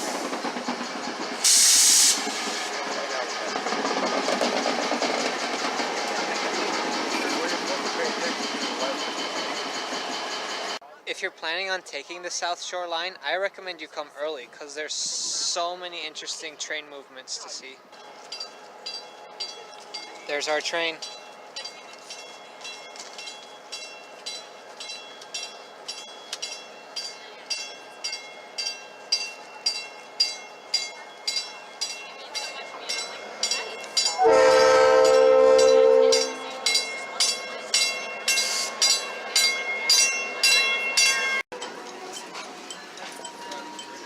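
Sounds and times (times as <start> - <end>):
electric train pulling in: 0.0 - 10.8, 17.8 - 44.0
bell clanging: 18.0 - 44.0
train horn: 34.2 - 36.6.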